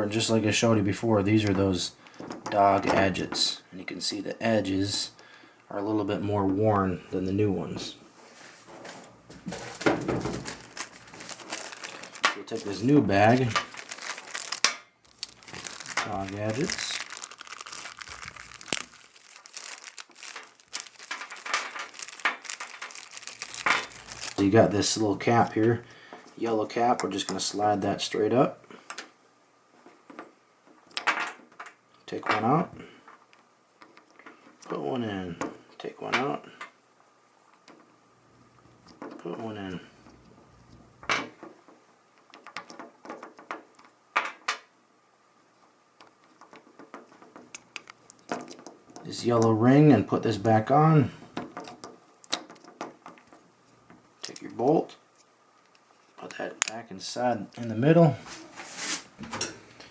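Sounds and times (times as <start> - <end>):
plastic bag crinkling: 8.4 - 26.9, 46.1 - 53.4.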